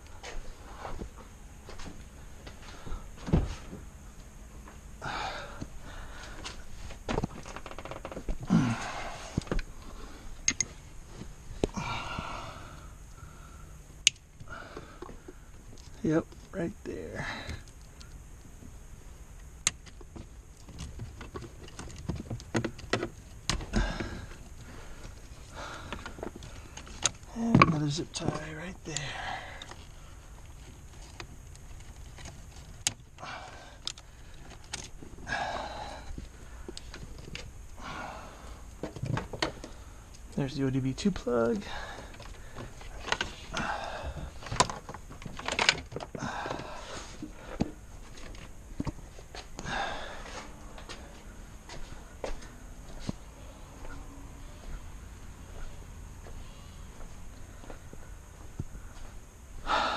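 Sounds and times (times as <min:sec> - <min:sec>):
light rustling of wiring: 0:12.6 - 0:59.3.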